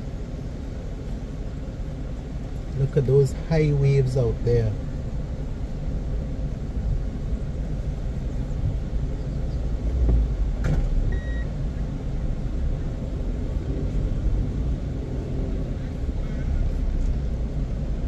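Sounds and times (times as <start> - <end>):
car engine and tyres rumbling: 0.0 - 18.0
short electronic beep: 11.1 - 11.5.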